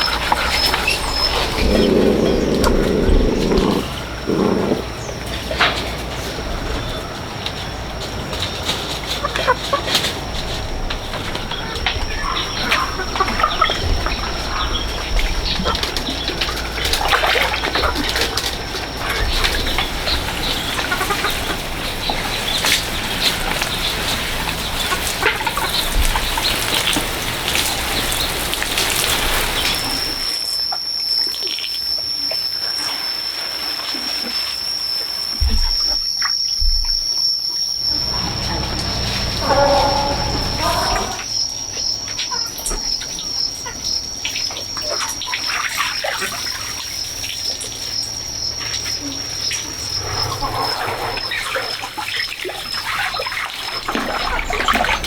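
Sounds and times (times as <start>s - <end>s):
animal calls: 0.0s - 10.4s, 37.8s - 41.3s, 48.6s - 55.0s
rustling and scratching: 0.0s - 11.5s
pigs grunting: 0.0s - 30.3s, 37.8s - 41.3s, 49.0s - 52.0s
water splashing: 16.6s - 30.3s, 37.8s - 41.3s.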